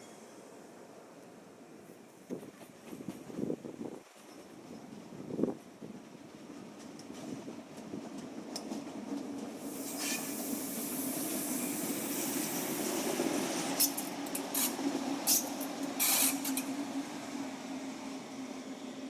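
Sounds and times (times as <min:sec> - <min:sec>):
train hum: 0:00.0 - 0:19.0
hiss: 0:09.6 - 0:16.7.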